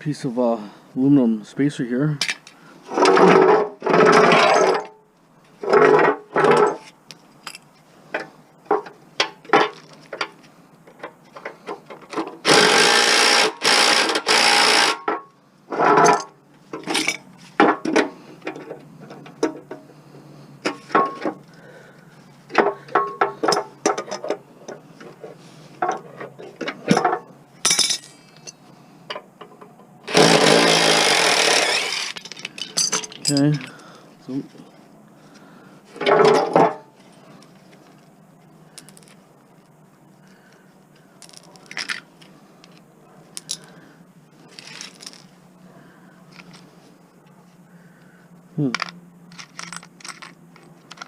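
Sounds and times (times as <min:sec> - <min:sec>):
power tool running: 0:12.4 - 0:15.0, 0:30.0 - 0:32.2
metal tools clinking: 0:15.1 - 0:19.6, 0:25.8 - 0:28.6, 0:31.6 - 0:33.9, 0:43.4 - 0:43.8, 0:44.5 - 0:45.3, 0:48.7 - 0:51.0.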